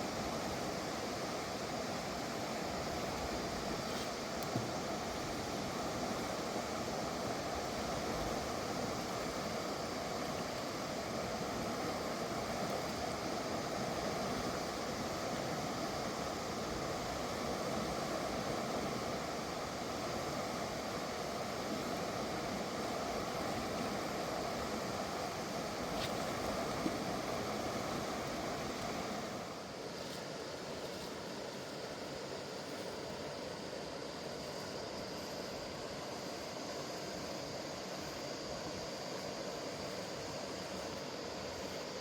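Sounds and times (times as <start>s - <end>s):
river rushing over rocks: 0.0s - 42.0s.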